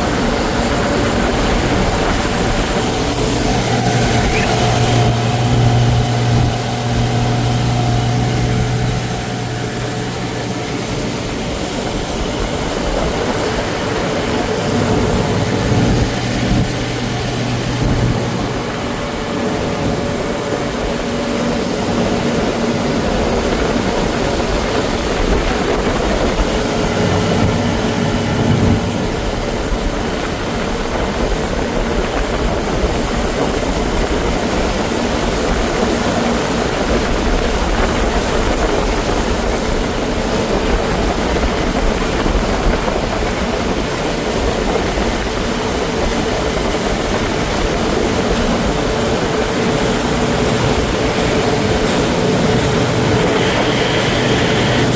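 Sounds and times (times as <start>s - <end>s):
outboard motor running: 0.0s - 54.9s
steady rushing noise: 0.0s - 54.9s.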